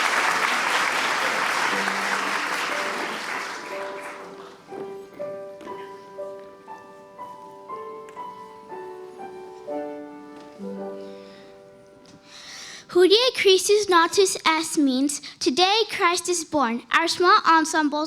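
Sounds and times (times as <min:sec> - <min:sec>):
audience applause: 0:00.0 - 0:04.8
slow piano notes: 0:00.0 - 0:13.1.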